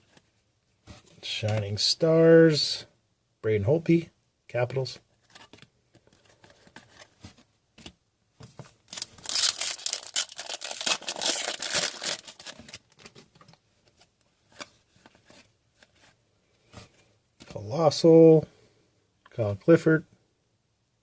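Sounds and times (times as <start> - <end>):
foil wrapper crinkling: 8.9 - 13.2.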